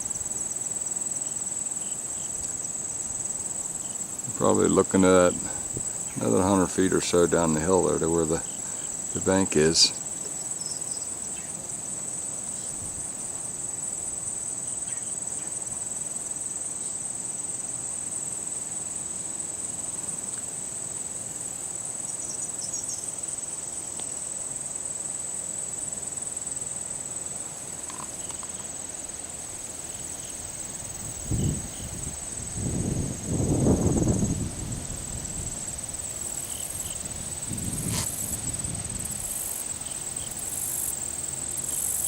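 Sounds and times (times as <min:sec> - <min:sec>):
crickets trilling: 0:00.0 - 0:42.0.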